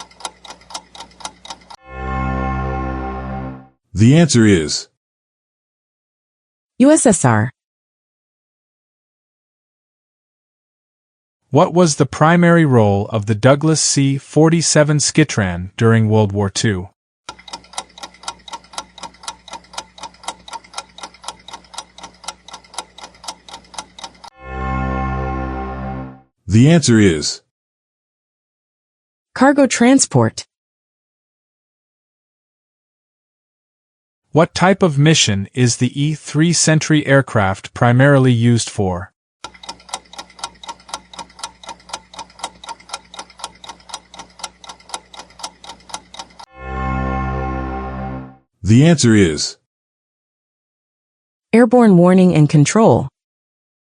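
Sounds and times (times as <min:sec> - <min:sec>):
clock ticking: 0:00.0 - 0:01.8, 0:17.3 - 0:24.3, 0:39.4 - 0:46.5.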